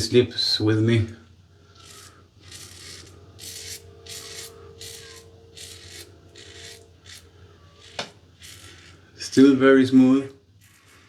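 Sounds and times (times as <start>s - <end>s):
razor scraping stubble: 1.7s - 9.6s, 10.6s - 11.0s.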